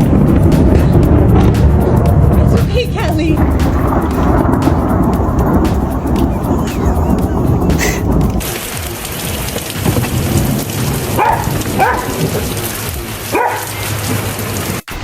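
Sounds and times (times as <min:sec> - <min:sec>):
heavy rain: 0:00.0 - 0:15.0
dog barking: 0:11.1 - 0:12.4, 0:13.3 - 0:13.8.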